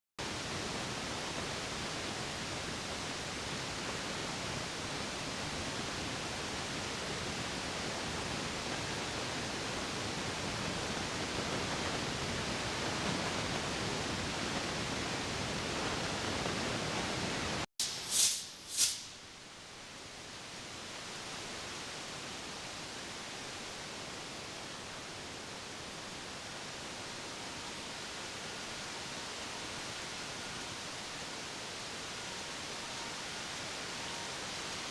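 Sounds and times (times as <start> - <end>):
short sharp hissing bursts: 17.8 - 19.4.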